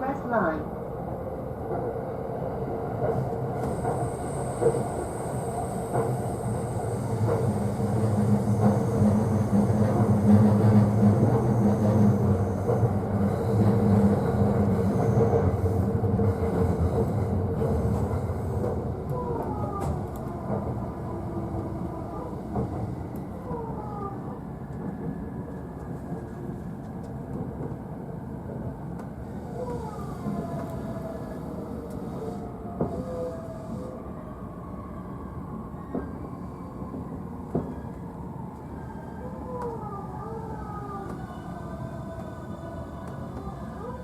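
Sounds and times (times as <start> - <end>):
train running rumble: 3.0 - 27.8.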